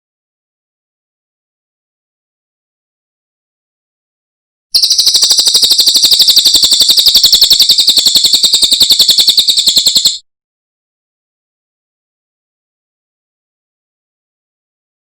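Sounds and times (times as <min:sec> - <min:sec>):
bird singing rapid high trill: 0:04.8 - 0:10.2.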